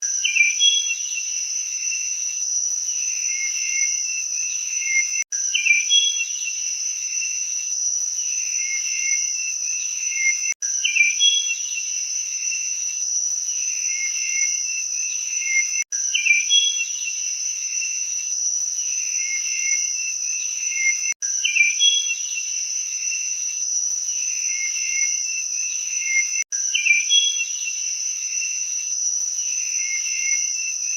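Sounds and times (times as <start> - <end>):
high-pitched insect chorus: 0.0 - 30.9.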